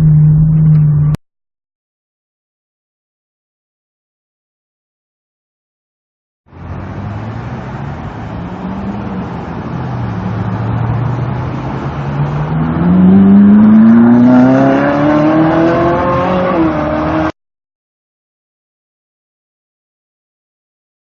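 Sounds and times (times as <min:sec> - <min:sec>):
car engine accelerating: 0:00.0 - 0:01.2, 0:06.5 - 0:17.3.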